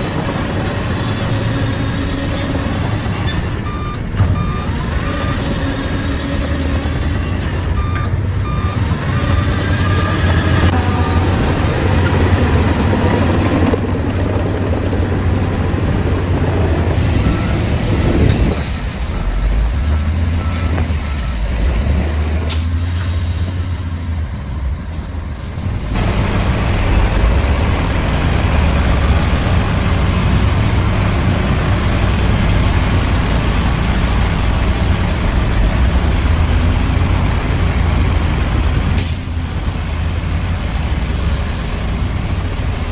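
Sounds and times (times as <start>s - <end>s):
bulldozer engine under load: 0.0s - 42.9s
backup alarm beeping: 3.3s - 5.4s, 7.8s - 10.2s.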